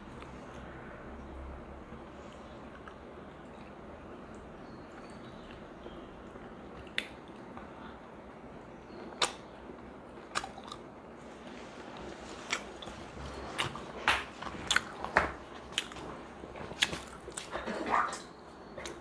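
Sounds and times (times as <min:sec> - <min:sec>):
person chewing wet mouth smacks: 0:10.2 - 0:10.9, 0:12.4 - 0:18.2.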